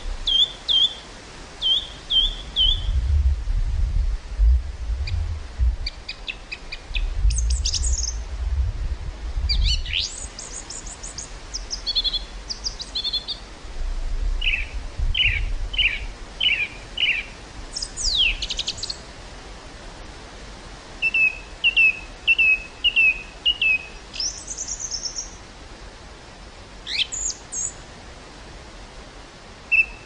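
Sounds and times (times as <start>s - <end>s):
songbirds singing: 0.0s - 3.0s, 5.0s - 8.3s, 9.4s - 13.5s, 14.4s - 19.1s, 21.0s - 25.5s, 26.8s - 27.8s, 29.7s - 30.0s
wind rumbling on microphone: 0.0s - 24.6s.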